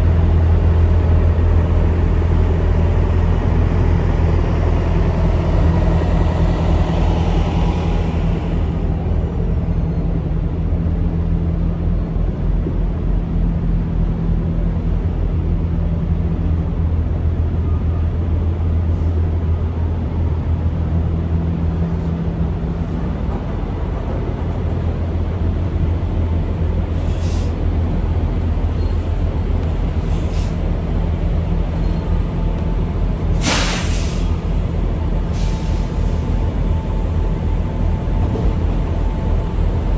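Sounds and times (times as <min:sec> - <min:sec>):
brief air hisses: 0:33.4 - 0:34.4.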